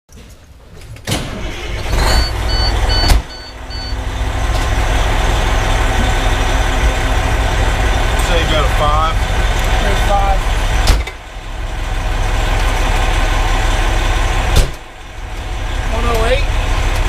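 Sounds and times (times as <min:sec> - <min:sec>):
diesel engine rumble: 0:00.4 - 0:17.0
high electronic beeps: 0:02.0 - 0:04.0
loud thump: 0:14.5 - 0:14.8.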